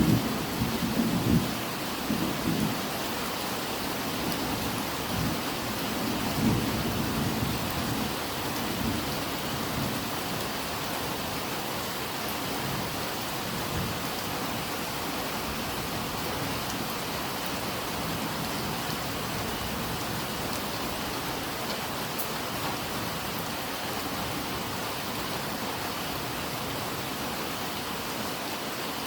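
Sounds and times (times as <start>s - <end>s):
low rumble of thunder: 0.0s - 2.9s, 4.2s - 10.1s
steady rain: 0.0s - 29.0s.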